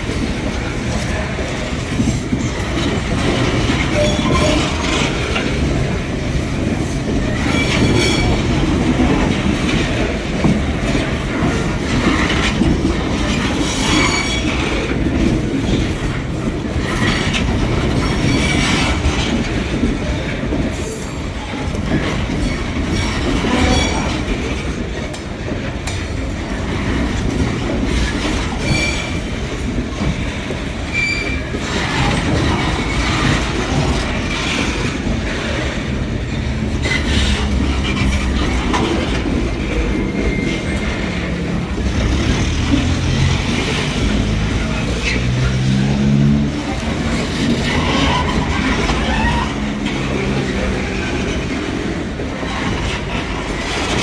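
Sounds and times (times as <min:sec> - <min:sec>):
train wheels clacking on rails: 0:00.0 - 0:54.0
high-pitched wheel squeals: 0:03.9 - 0:04.8, 0:47.7 - 0:50.4.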